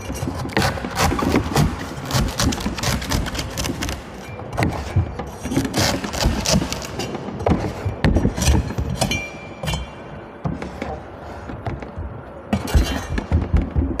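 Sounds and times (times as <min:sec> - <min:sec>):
knife chopping coconuts: 0:00.0 - 0:04.0.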